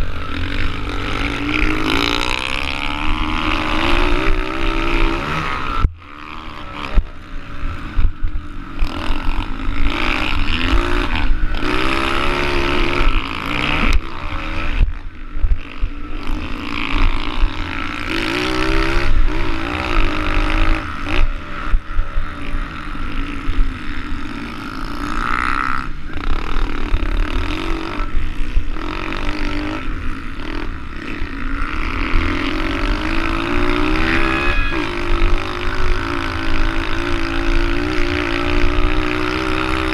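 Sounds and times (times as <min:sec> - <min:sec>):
pit bike engine revving: 0:00.0 - 0:39.9
wind rumble on microphone: 0:02.9 - 0:13.2.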